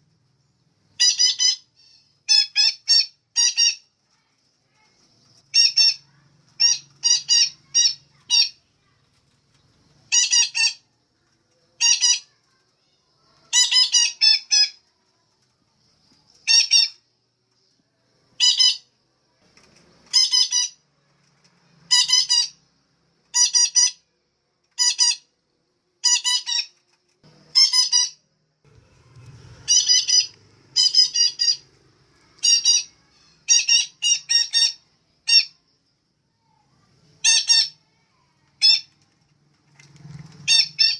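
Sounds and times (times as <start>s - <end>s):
parakeet calling: 1.0s - 3.9s, 5.5s - 8.6s, 10.1s - 10.8s, 11.8s - 12.4s, 13.5s - 14.8s, 16.4s - 17.0s, 18.4s - 18.9s, 20.1s - 20.8s, 21.9s - 22.6s, 23.3s - 24.0s, 24.8s - 25.3s, 26.0s - 26.7s, 27.5s - 28.2s, 28.9s - 31.7s, 32.3s - 35.6s, 37.2s - 37.8s, 40.4s - 40.9s.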